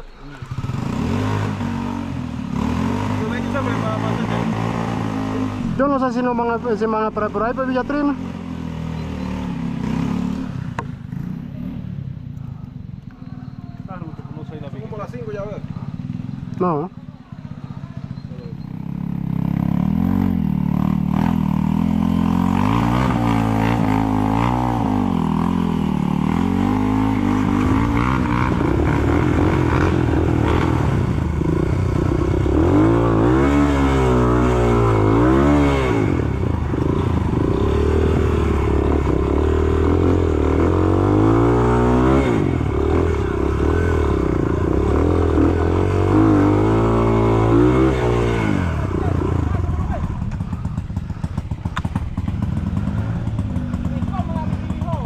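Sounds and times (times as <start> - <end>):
motorcycle engine revving: 0.0 - 55.0
motorcycle clatter: 48.4 - 55.0.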